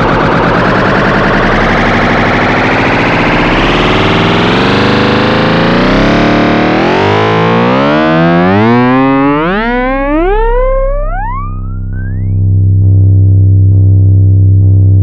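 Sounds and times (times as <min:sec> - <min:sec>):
distorted electronic buzz: 0:01.4 - 0:15.0
wavering electronic tones: 0:01.5 - 0:13.0.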